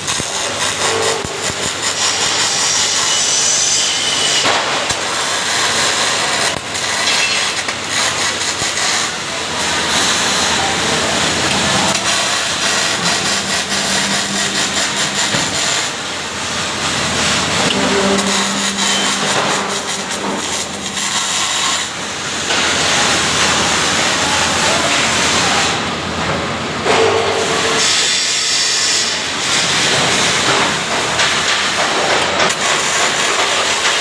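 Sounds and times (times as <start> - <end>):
welding arc crackling and hissing: 0.0 - 25.8, 27.3 - 34.0.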